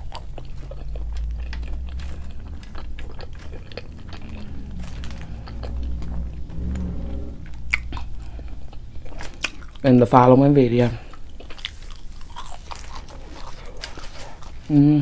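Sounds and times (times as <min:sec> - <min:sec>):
person chewing food: 0:00.0 - 0:06.4, 0:07.7 - 0:09.9, 0:11.0 - 0:14.7.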